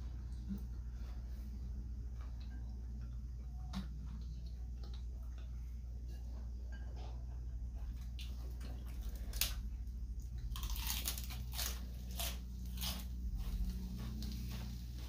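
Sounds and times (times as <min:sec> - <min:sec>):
person biting and chewing: 0:08.2 - 0:13.6
crisp crunching: 0:10.3 - 0:13.1.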